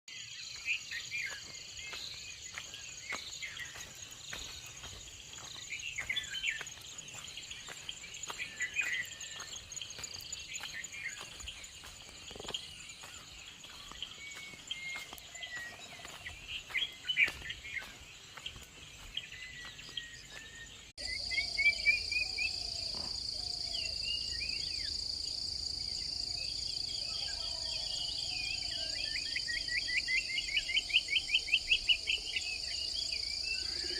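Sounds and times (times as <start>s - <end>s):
songbirds chirping and warbling: 0.1s - 33.9s
insect drone: 16.4s - 33.9s.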